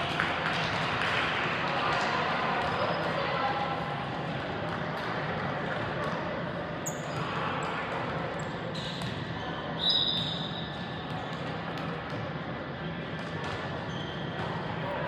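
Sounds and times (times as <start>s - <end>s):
murmur of voices: 0.0s - 15.0s
sneakers squeaking on court: 6.8s - 7.3s, 13.8s - 14.6s.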